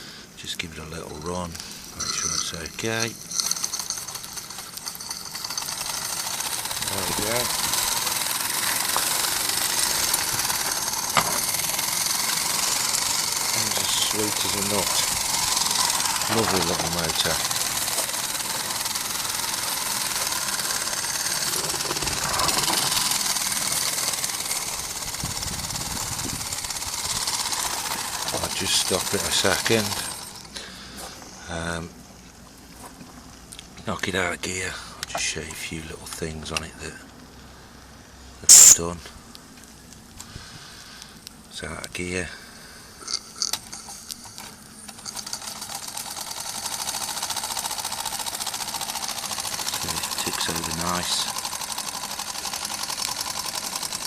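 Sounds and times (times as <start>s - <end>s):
steam engine exhaust ticking: 1.5s - 29.9s
sharp clicks: 38.5s - 38.8s
steam hiss: 38.5s - 38.8s.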